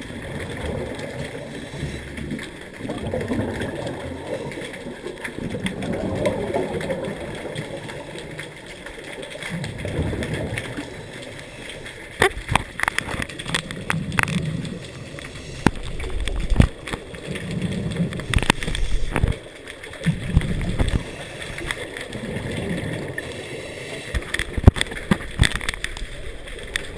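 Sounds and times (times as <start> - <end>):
bubbles gurgling underwater: 0.0 - 26.9
diver breathing through regulator: 1.3 - 2.5, 14.7 - 16.2, 18.2 - 19.4, 23.2 - 24.6.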